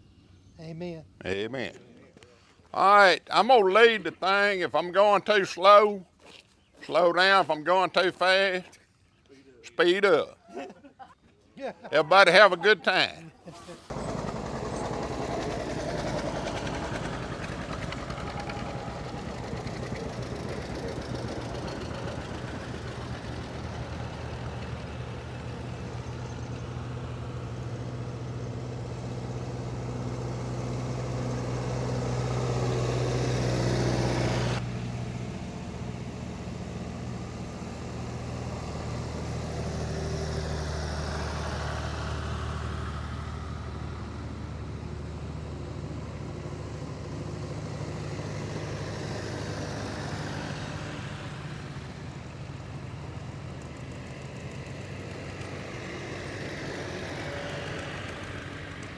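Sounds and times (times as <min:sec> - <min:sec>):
tractor engines running: 0:01.2 - 0:01.7, 0:02.5 - 0:08.7, 0:09.6 - 0:10.3, 0:11.9 - 0:58.9.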